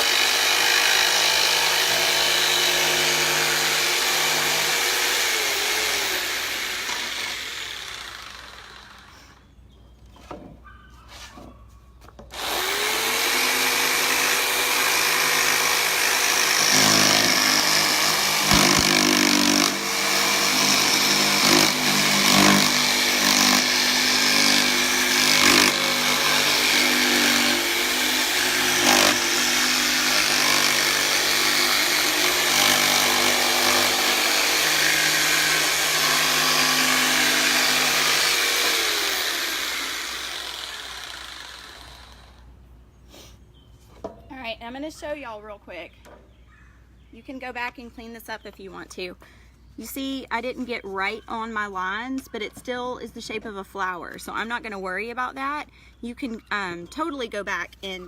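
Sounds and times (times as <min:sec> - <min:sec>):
electric jigsaw cutting wood: 0:00.0 - 0:09.2, 0:12.3 - 0:42.4.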